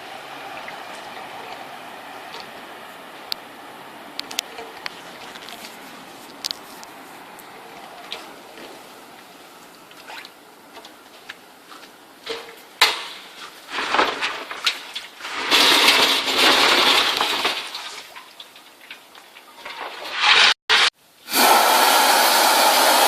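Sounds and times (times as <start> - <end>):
vacuum suction rush: 20.8 - 23.0.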